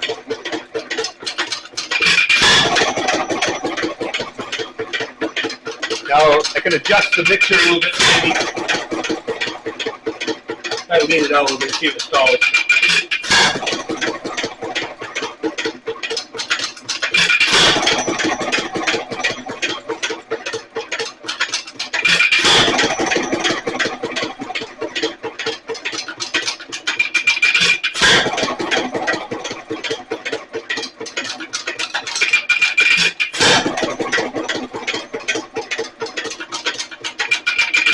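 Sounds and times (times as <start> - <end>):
stationary engine firing and clattering: 0.0 - 37.9.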